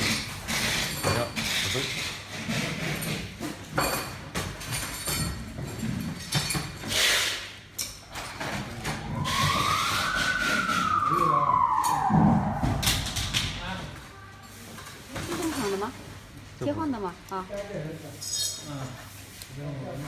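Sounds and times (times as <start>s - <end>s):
background noise: 0.0s - 20.0s
siren wail rising and falling: 8.4s - 14.1s.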